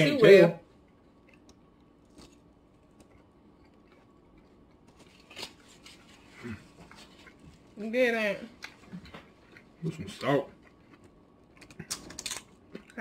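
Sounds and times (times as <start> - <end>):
crunching of tortilla chips: 1.2 - 6.5, 11.0 - 13.0.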